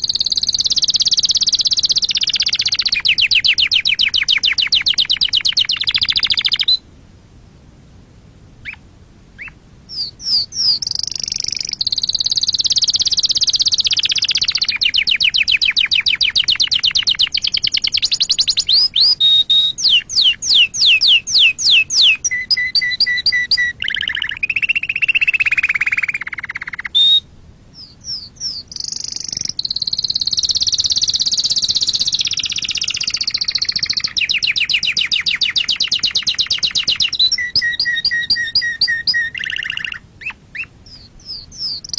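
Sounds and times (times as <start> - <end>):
canary singing trills and chirps: 0.0 - 6.8, 8.6 - 8.8, 9.4 - 41.9.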